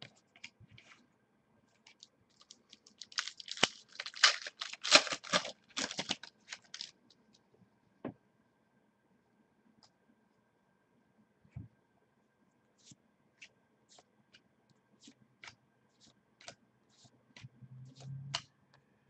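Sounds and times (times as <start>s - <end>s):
foil wrapper crinkling and tearing: 1.9s - 7.0s.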